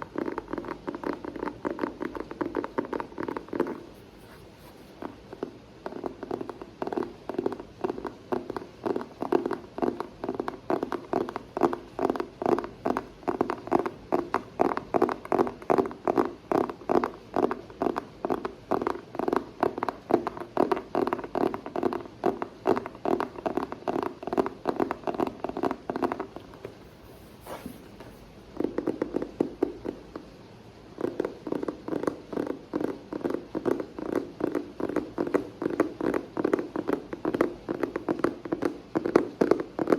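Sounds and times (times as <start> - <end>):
fingers tapping on object: 0.0 - 4.0, 5.0 - 26.8, 28.6 - 30.3, 31.0 - 39.9.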